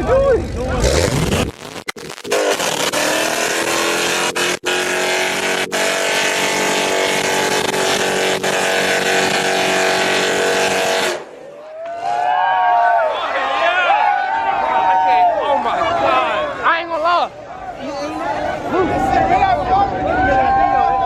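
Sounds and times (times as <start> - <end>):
car engine revving hard: 0.6 - 11.2.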